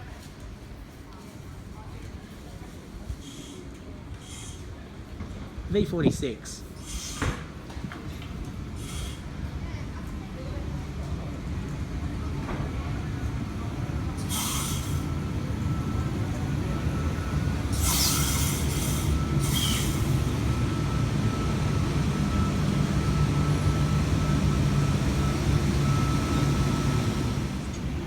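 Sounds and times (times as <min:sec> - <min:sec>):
train steady whine: 0:00.0 - 0:28.0
train air hiss bursts: 0:03.1 - 0:04.8, 0:06.7 - 0:07.5, 0:08.8 - 0:09.4, 0:14.2 - 0:15.2, 0:17.6 - 0:20.4.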